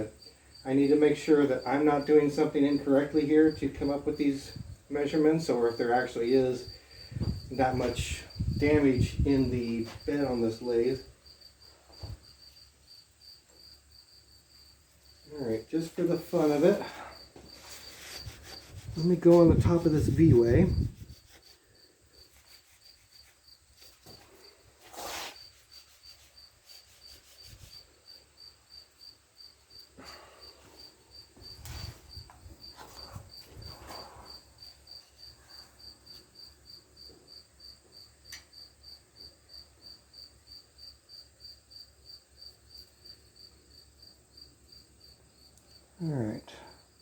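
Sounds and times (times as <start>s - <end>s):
cricket chirping: 0.0s - 47.0s
faint knocks and scrapes: 15.7s - 27.9s, 30.0s - 36.3s.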